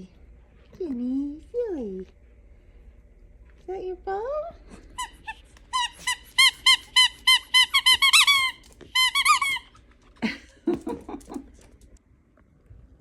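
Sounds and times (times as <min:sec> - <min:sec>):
squeaky toy ball squeaking: 0:05.0 - 0:09.7.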